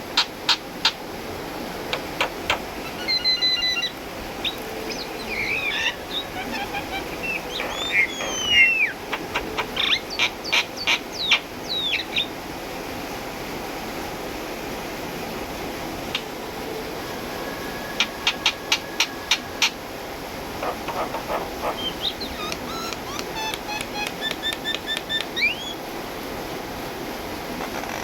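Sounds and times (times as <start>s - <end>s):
steady background hiss: 0.0s - 28.0s
bird calling with clicks and whistles: 1.9s - 12.3s, 18.0s - 19.8s, 20.6s - 25.8s.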